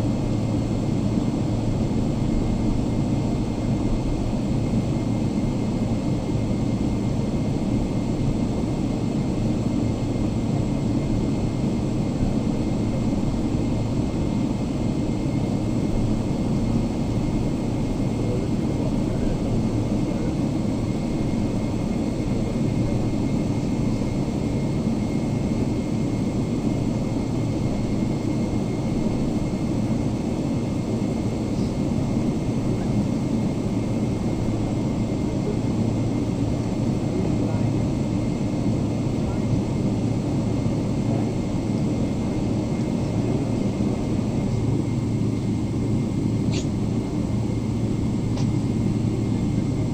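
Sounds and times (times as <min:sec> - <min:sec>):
airplane cabin rumble: 0:00.0 - 0:49.9.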